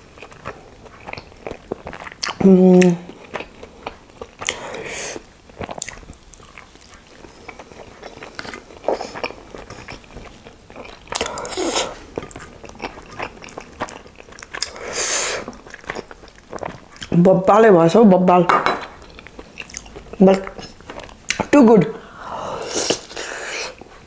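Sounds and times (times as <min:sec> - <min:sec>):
wet chewing: 0:00.2 - 0:17.2, 0:19.0 - 0:21.5.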